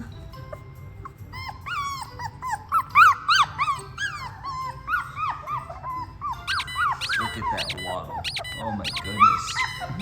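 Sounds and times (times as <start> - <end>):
puppy whining and squeaking: 0.0 - 10.0.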